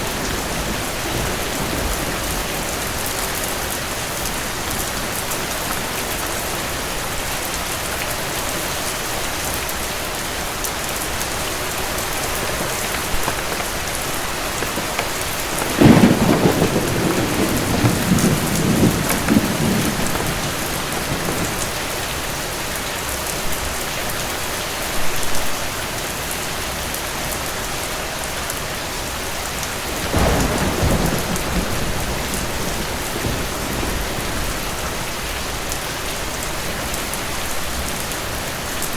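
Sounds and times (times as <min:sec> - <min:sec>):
thunder rolling: 0:00.0 - 0:07.3, 0:10.8 - 0:22.4, 0:29.7 - 0:38.7
heavy rain: 0:00.0 - 0:38.9.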